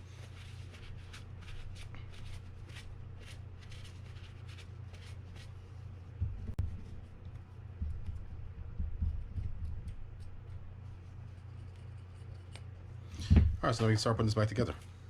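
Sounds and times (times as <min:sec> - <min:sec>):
steady low hum: 0:00.0 - 0:15.0
soft bump: 0:06.2 - 0:10.2, 0:13.2 - 0:13.8.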